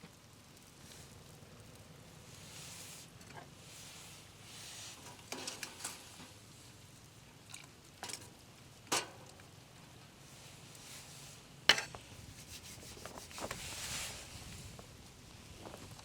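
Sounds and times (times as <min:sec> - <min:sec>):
soft rubbing and rustling: 0:00.7 - 0:06.7, 0:10.2 - 0:16.0
light knocks and scrapes: 0:11.0 - 0:14.9.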